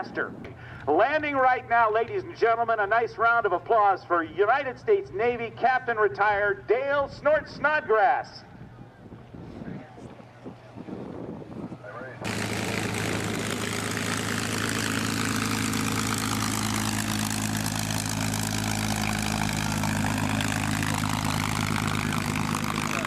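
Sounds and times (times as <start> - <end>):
aircraft engine running: 9.9 - 23.0.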